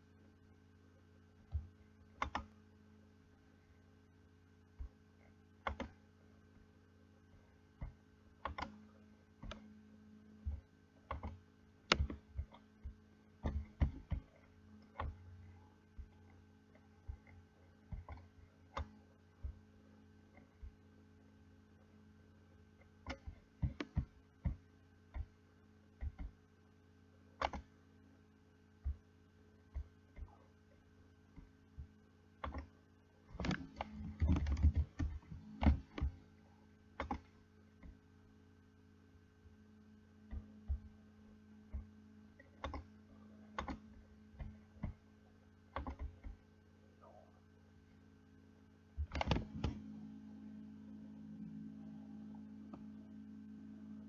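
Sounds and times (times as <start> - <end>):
faint steady hum: 0.0 - 54.0
sharp clicks and knocks: 10.4 - 15.3, 49.0 - 49.8.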